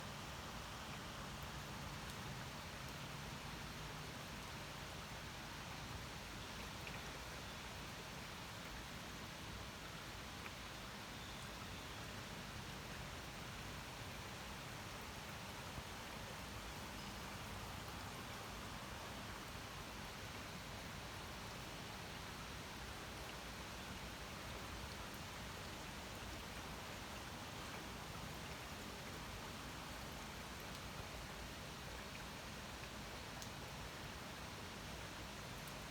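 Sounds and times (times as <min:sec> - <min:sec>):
steady rain hiss: 0:00.0 - 0:35.9.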